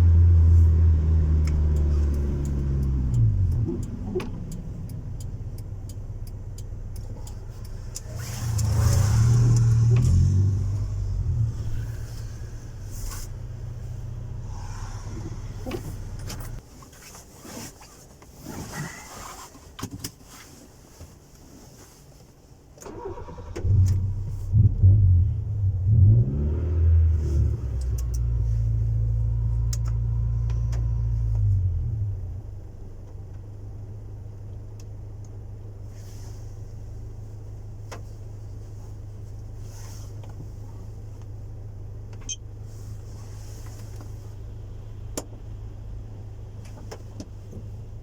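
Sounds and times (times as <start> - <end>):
car engine idling and revving: 0.0 - 16.8, 22.8 - 48.0
ignition clicks: 0.1 - 16.7, 22.7 - 33.8, 42.0 - 42.6.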